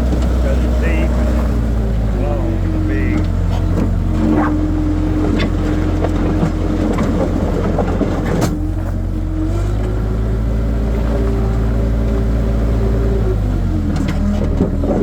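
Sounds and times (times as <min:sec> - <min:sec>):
loader engine running: 0:00.0 - 0:15.0.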